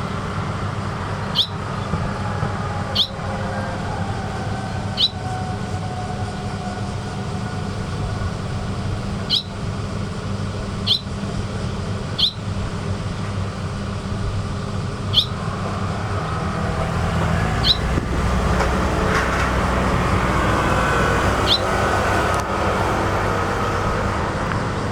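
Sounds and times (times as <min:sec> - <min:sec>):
traffic rumble: 0:00.0 - 0:24.9
swallow chirps: 0:09.3 - 0:09.6, 0:10.8 - 0:11.1, 0:12.2 - 0:12.4, 0:15.1 - 0:15.4, 0:17.6 - 0:17.9, 0:21.5 - 0:21.7
vehicle passing: 0:13.5 - 0:24.9.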